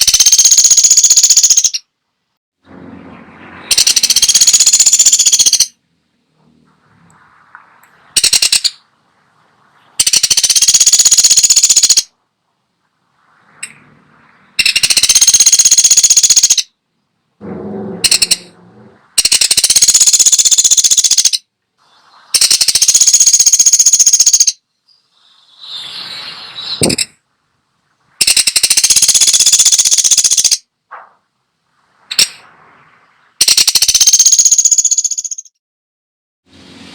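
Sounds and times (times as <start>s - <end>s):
woodpecker rapid rattling calls: 0.0s - 1.9s, 3.7s - 5.8s, 7.6s - 8.9s, 10.0s - 12.1s, 14.6s - 16.7s, 18.0s - 18.5s, 19.2s - 21.4s, 22.4s - 25.8s, 26.6s - 27.2s, 28.2s - 31.1s, 33.4s - 35.6s
low rough sound: 2.6s - 4.6s, 5.7s - 10.0s, 12.0s - 15.1s, 16.9s - 20.3s, 30.6s - 33.4s.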